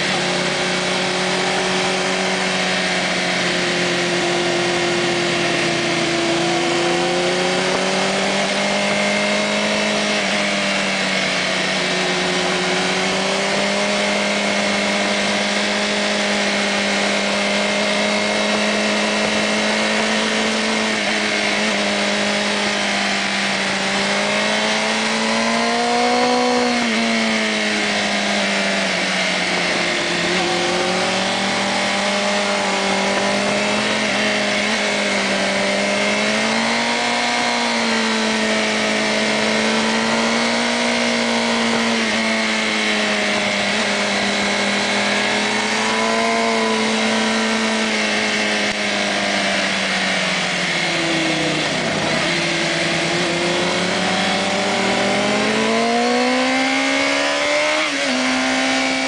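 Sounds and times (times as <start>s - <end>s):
wind noise: 0.0s - 56.2s
motorcycle engine revving: 0.0s - 59.0s.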